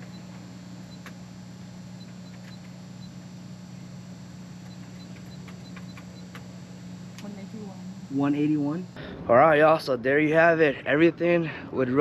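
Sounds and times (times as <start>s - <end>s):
low electrical hum: 0.0s - 12.0s
register keypad beeps: 2.0s - 3.2s, 4.6s - 6.5s.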